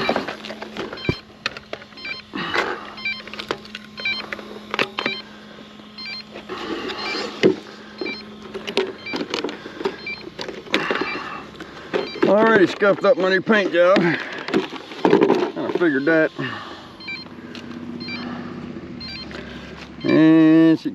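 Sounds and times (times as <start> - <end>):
faint steady hum: 0.0 - 20.9.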